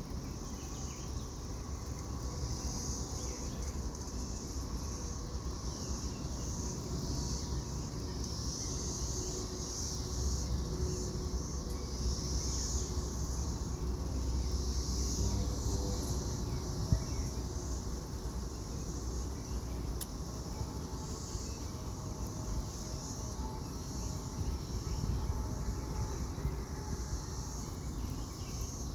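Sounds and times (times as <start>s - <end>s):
cicadas buzzing: 0.0s - 28.9s.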